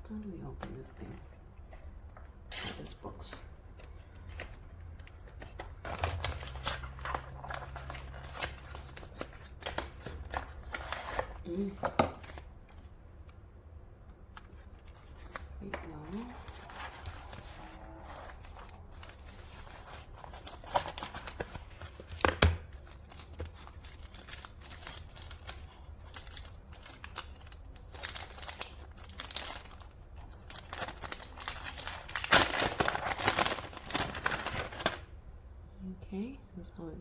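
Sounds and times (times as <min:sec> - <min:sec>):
packaging tearing and crinkling: 0:05.4 - 0:12.8, 0:16.2 - 0:35.1.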